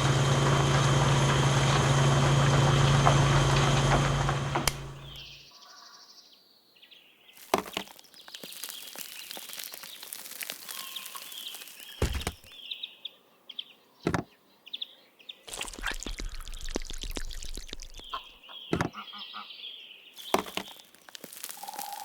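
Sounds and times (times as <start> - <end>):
birds chirping: 4.8 - 6.1, 6.9 - 15.8, 17.3 - 22.0.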